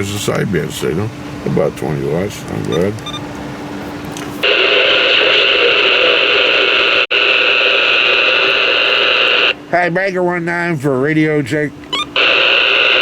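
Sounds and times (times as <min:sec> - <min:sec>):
faint steady hum: 0:00.0 - 0:13.0
radio static hiss: 0:04.4 - 0:09.6, 0:12.2 - 0:13.0.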